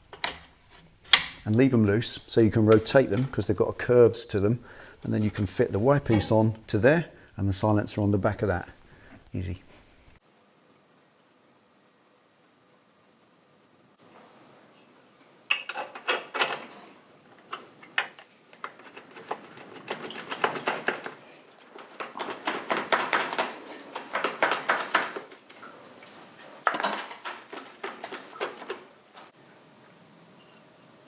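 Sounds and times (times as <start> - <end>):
metal pipes clinking and scraping: 0.0 - 9.8, 21.7 - 28.9.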